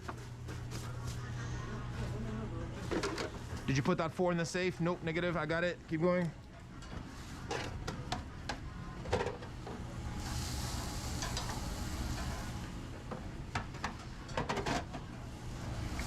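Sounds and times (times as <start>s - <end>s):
steady low hum: 0.0s - 16.0s
food sizzling loudly: 10.1s - 12.6s.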